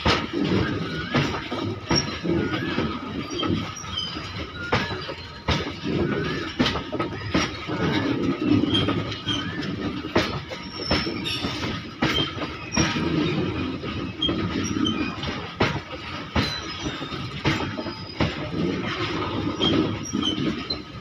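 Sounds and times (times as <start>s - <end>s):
high wheel squeaks: 0.0s - 21.0s
train wheels rumbling and clacking: 0.0s - 21.0s.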